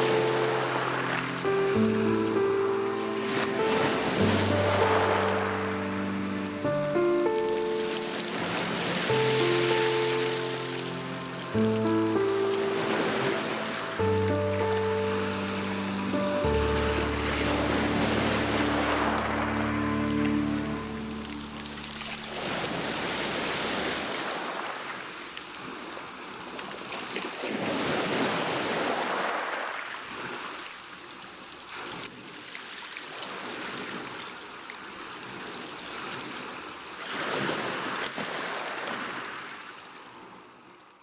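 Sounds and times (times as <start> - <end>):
music tones: 0.0 - 23.6
ocean waves breaking: 0.0 - 30.9.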